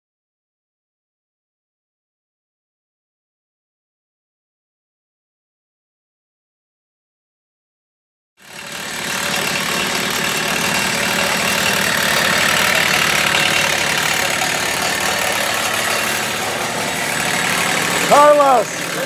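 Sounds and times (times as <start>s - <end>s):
engine idling: 8.4s - 19.0s.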